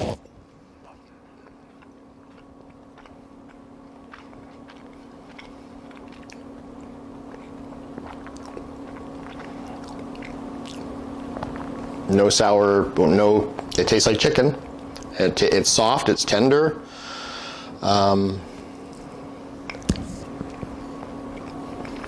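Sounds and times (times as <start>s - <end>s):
steady low hum: 0.0s - 22.0s
person chewing: 0.8s - 11.9s, 19.6s - 22.0s.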